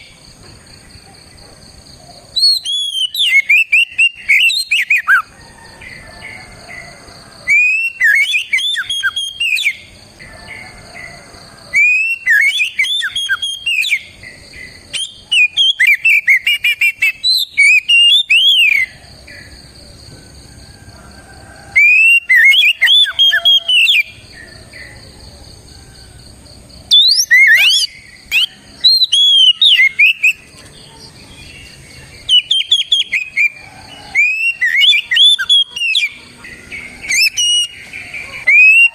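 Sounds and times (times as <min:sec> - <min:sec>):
magpie-robin whistled song: 0:02.3 - 0:05.3, 0:07.4 - 0:09.9, 0:11.7 - 0:18.9, 0:21.7 - 0:24.2, 0:26.9 - 0:31.6, 0:32.2 - 0:38.9.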